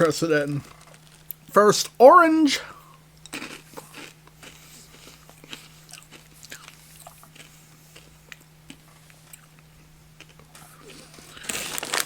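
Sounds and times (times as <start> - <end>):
steady low hum: 0.0 - 12.0
person chewing crunchy candy: 2.9 - 12.0.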